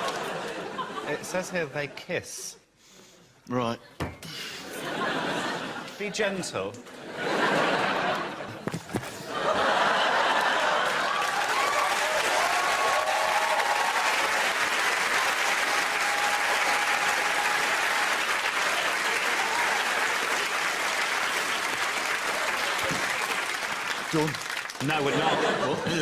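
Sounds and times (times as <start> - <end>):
audience applauding and cheering: 9.3 - 25.4.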